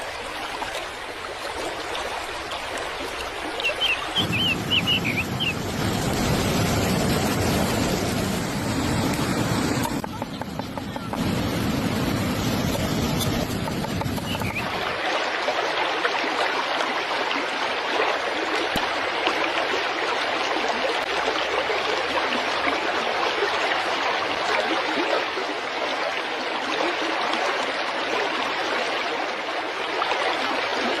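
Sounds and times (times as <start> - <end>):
stream water running over stones: 0.0 - 31.0.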